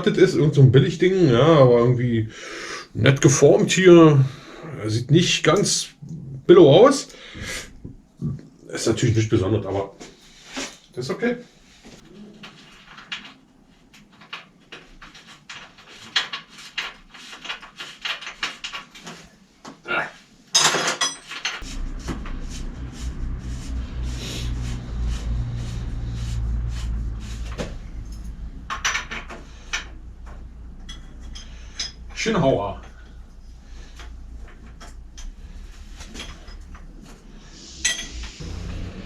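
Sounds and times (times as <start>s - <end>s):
steady low hum: 21.6s - 39.0s.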